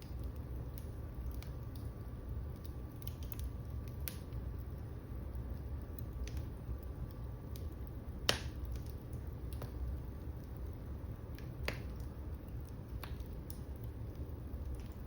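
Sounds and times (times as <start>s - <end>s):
low steady rumble: 0.0s - 15.0s
wood fire crackling: 0.0s - 15.0s
sharp pops of fire: 7.5s - 10.5s, 11.3s - 15.0s.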